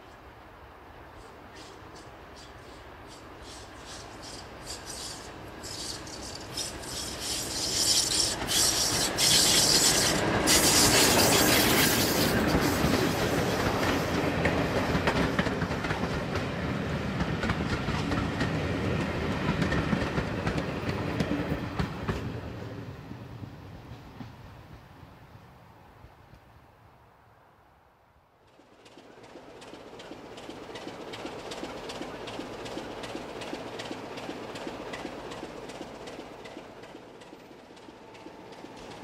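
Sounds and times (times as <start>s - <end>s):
diesel train passing: 0.0s - 26.0s, 28.5s - 39.0s
wheels clicking over rail joints: 2.0s - 16.5s, 28.8s - 39.0s.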